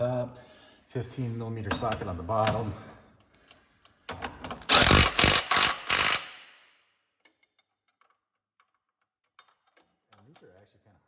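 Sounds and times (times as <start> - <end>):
tool clicking on metal: 4.6 - 6.6
impact wrench bursts: 4.6 - 6.8.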